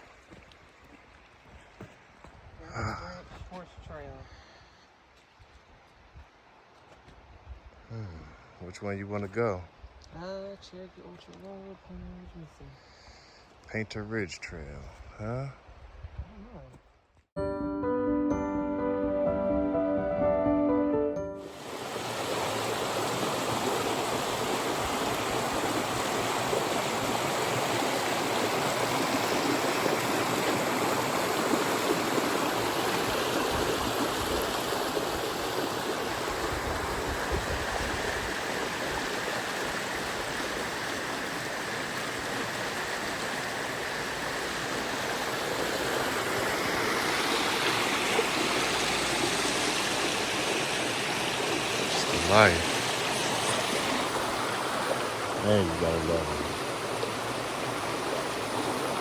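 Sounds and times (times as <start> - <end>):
stream water rushing: 21.4 - 59.0.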